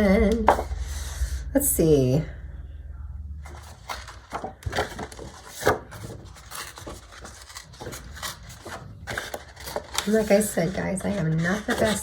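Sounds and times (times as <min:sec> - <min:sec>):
thick paper being torn: 0:03.6 - 0:12.0.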